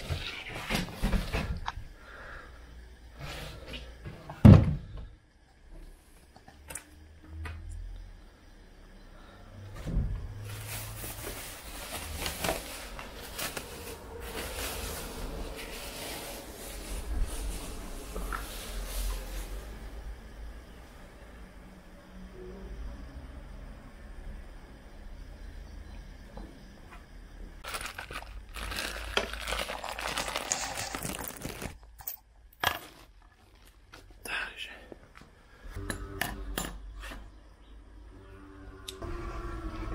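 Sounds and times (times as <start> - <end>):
packaging rustling: 10.5 - 19.4, 27.6 - 32.2.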